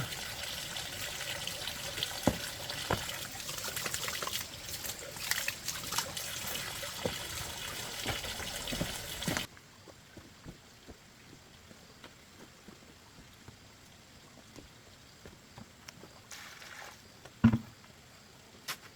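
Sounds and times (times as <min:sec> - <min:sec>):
water running and trickling: 0:00.0 - 0:09.5, 0:16.0 - 0:17.2.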